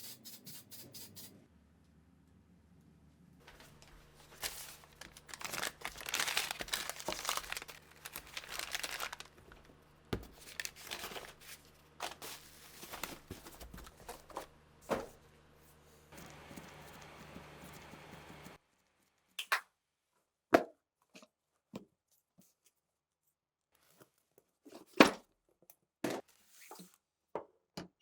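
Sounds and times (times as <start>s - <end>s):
crinkling and rustling: 3.4s - 15.2s.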